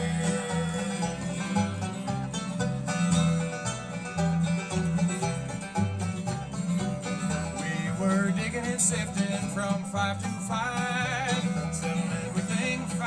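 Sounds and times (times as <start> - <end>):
person singing: 0.0 - 2.0, 7.2 - 13.0
bluegrass band playing: 0.0 - 13.0.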